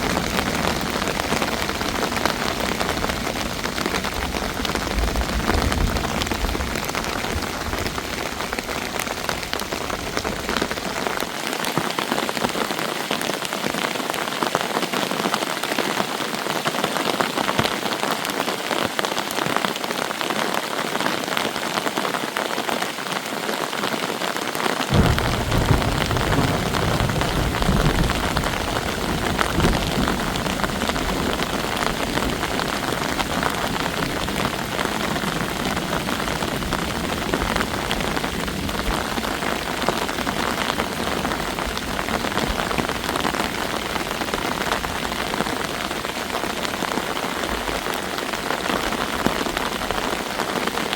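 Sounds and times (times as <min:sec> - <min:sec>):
heavy rain: 0:00.0 - 0:50.9.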